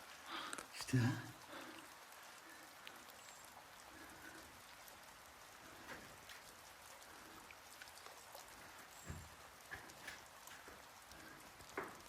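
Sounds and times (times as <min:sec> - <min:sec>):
faint steady hiss: 0:00.0 - 0:12.0
light ticks and crackles: 0:00.0 - 0:12.0.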